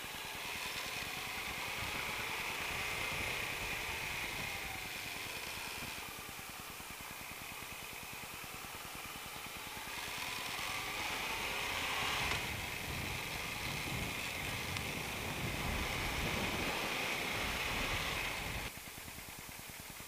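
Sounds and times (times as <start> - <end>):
motorcycle engine accelerating: 0.0 - 18.7
wind rush on microphone: 11.8 - 18.7.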